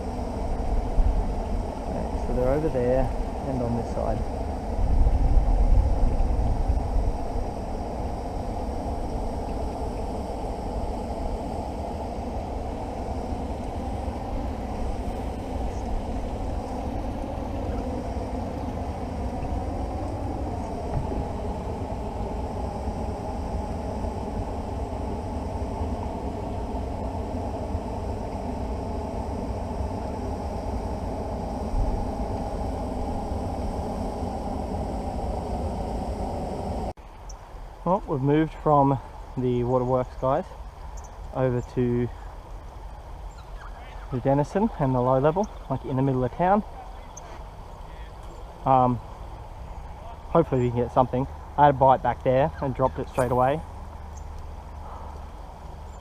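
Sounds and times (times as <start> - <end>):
car engine: 0.0 - 37.0
road noise: 0.0 - 56.0.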